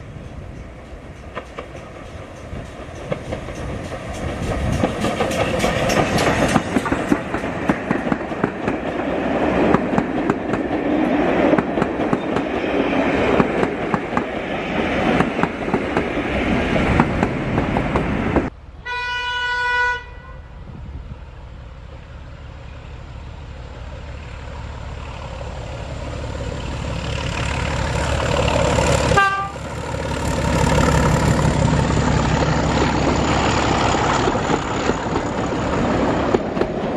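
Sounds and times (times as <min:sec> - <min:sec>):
train clattering: 0:00.0 - 0:18.5, 0:21.8 - 0:36.9
train horn blast: 0:18.8 - 0:20.7, 0:29.0 - 0:29.8
locomotive engine drone: 0:20.4 - 0:36.9.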